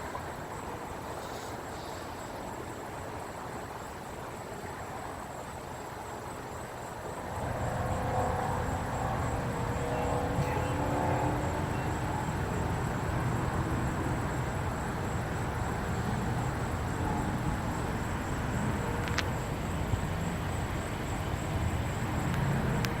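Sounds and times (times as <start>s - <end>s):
faint engine note: 7.4s - 18.0s
car engine and road rumble: 7.4s - 23.0s.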